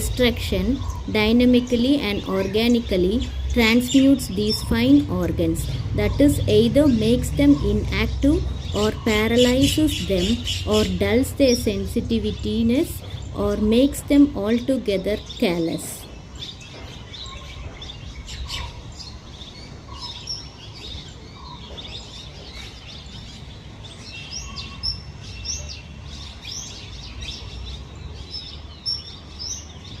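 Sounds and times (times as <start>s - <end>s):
low background rumble: 0.0s - 16.3s
birds chirping and whistling: 0.0s - 30.0s.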